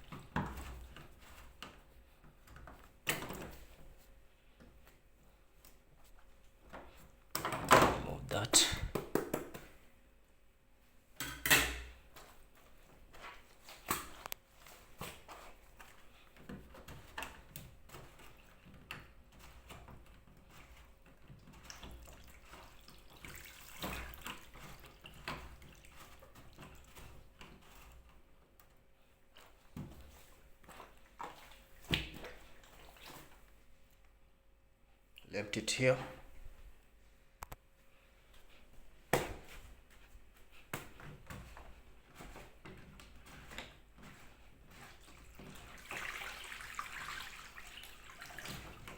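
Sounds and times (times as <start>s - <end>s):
small splashes: 21.4s - 27.0s, 29.4s - 33.5s, 44.8s - 48.9s.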